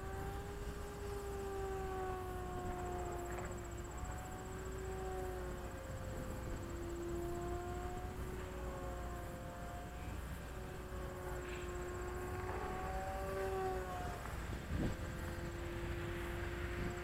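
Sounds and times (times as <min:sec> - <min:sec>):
model plane motor droning: 0:00.0 - 0:17.0
wind rumble on microphone: 0:00.0 - 0:17.0.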